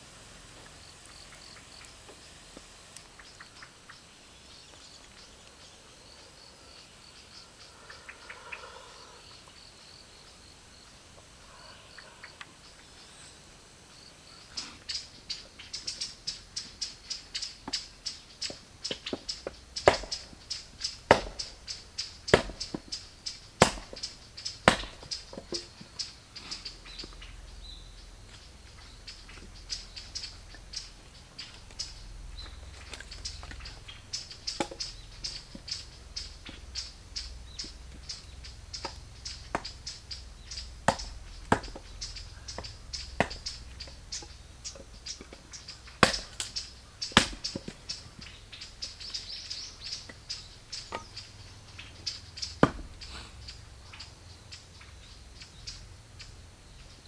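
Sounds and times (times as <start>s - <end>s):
insects chirping: 0.0s - 57.0s
loud cracks: 21.0s - 22.8s, 23.6s - 25.2s, 46.0s - 46.6s.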